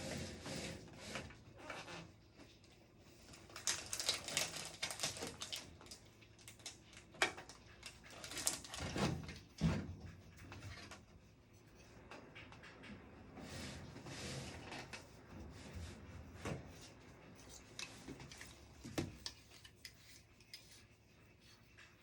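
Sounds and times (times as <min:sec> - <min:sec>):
objects rubbing and clicking on desk: 0:00.0 - 0:01.5, 0:10.3 - 0:22.0.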